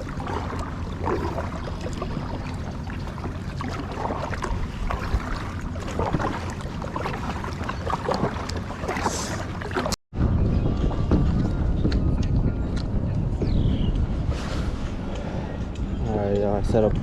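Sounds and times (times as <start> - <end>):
small water splashes: 0.0 - 10.0
wind buffeting microphone: 0.0 - 17.0.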